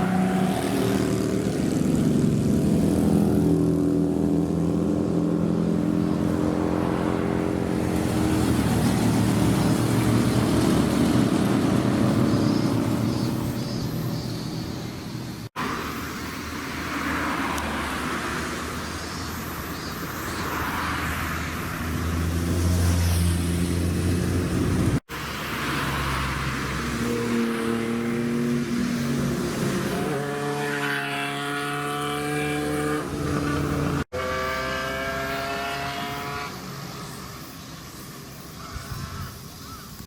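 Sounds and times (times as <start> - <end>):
car engines revving: 0.0 - 38.4.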